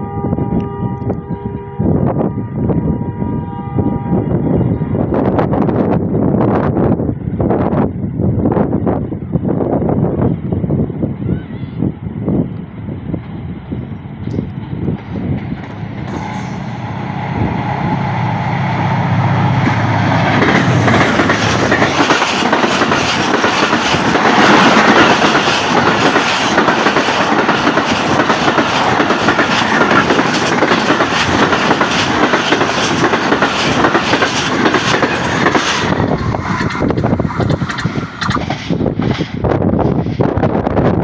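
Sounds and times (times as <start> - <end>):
diesel locomotive engine drone: 0.0 - 41.0
train wheels clicking over rail joints: 19.6 - 40.4.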